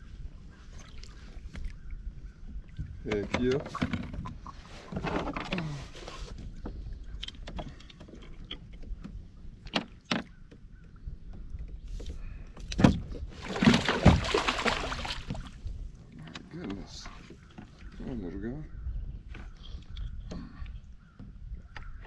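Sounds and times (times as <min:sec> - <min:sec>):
fish splashing and thrashing: 0:13.1 - 0:15.7.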